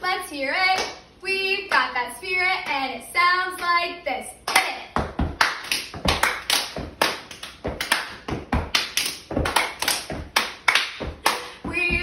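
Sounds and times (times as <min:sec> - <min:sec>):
hand claps: 0:04.5 - 0:12.0
foot stomps: 0:05.0 - 0:12.0.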